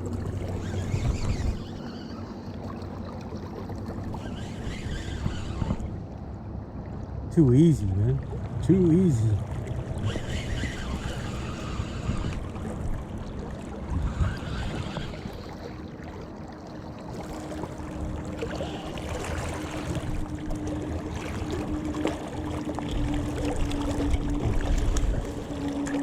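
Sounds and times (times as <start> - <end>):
river water running: 0.0 - 26.0
steady hum: 3.9 - 15.7, 17.0 - 26.0.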